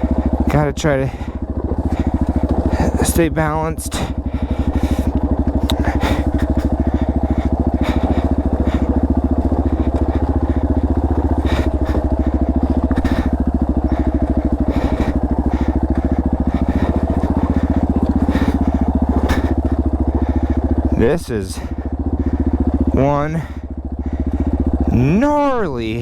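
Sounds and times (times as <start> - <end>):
dirt bike engine idling: 0.0 - 26.0.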